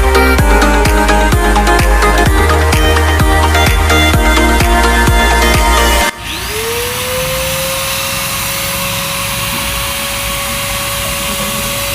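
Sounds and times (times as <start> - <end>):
music: 0.0 - 6.2
angle grinder whining: 0.0 - 11.9.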